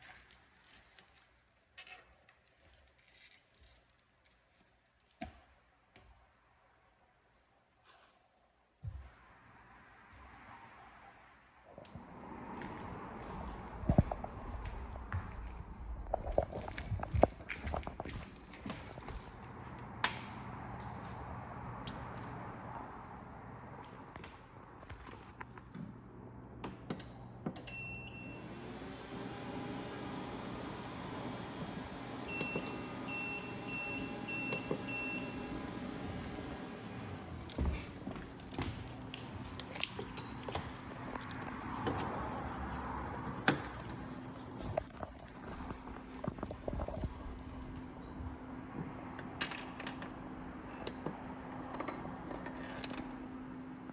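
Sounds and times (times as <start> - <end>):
low hum: 9.3 - 24.0.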